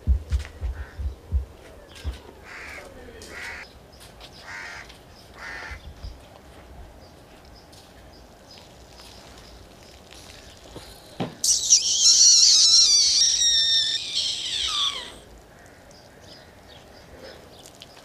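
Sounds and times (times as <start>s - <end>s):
loud low thumps: 0.0s - 2.3s
bird cawing: 0.6s - 1.2s, 2.4s - 3.6s, 4.4s - 5.8s, 11.4s - 16.8s.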